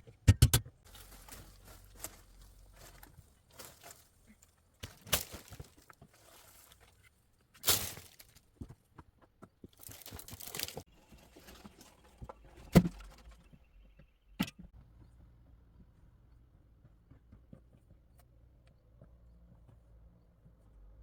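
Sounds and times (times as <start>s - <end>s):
rustling and handling noises: 0.8s - 8.7s, 9.6s - 13.5s.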